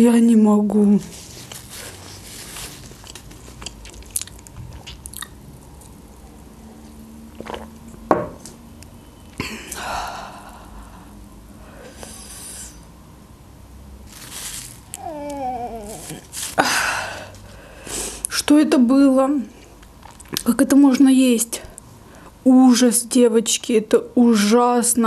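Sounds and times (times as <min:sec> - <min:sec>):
chewing and wet mouth clicks: 0:03.0 - 0:06.0, 0:19.8 - 0:20.5
loud breaths: 0:09.7 - 0:12.9, 0:15.0 - 0:18.3
woman whimpering: 0:15.0 - 0:17.2.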